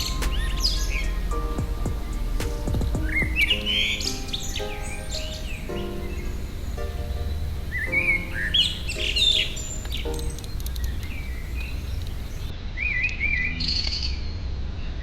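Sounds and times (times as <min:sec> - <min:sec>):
low background rumble: 0:00.0 - 0:03.8
small birds chirping: 0:00.0 - 0:12.5.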